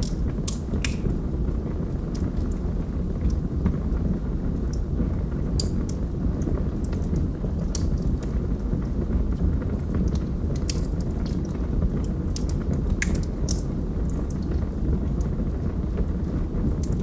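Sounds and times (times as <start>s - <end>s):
logs crackling and popping: 0.0s - 17.0s
rumble of flames: 0.0s - 17.0s.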